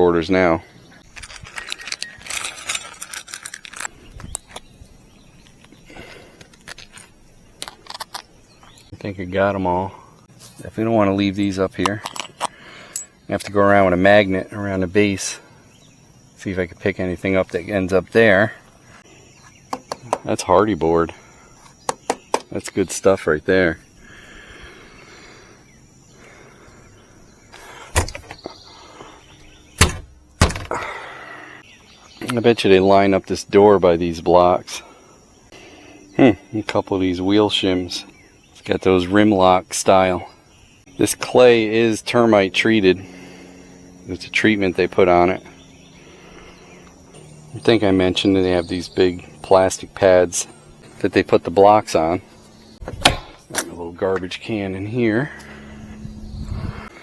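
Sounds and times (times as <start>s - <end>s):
insects droning: 0.0s - 57.0s
small metal pieces clicking: 1.0s - 4.6s, 6.4s - 8.9s.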